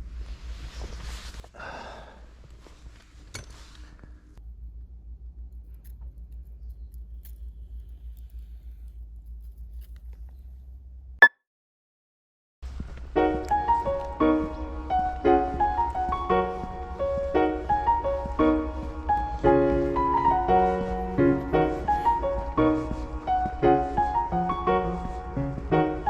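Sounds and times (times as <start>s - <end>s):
steady low rumble: 4.4s - 11.2s.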